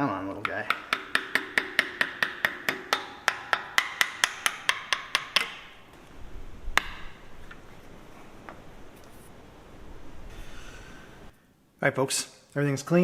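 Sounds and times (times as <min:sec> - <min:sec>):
hammer tapping on metal: 0:00.4 - 0:05.8.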